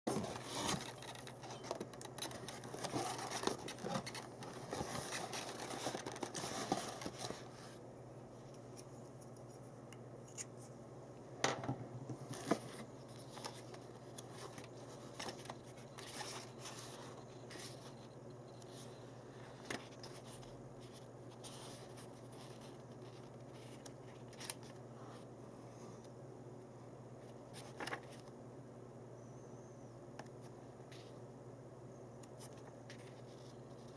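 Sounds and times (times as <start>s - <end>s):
scratching and scraping: 0.1s - 7.8s.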